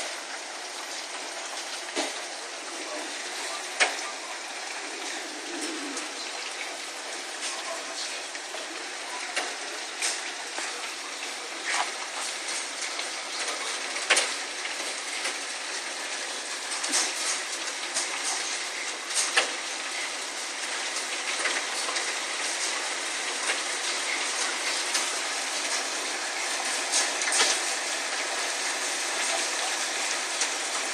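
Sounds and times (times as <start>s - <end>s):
hailstones knocking: 0.0s - 30.9s
heavy rain pouring: 0.0s - 30.9s.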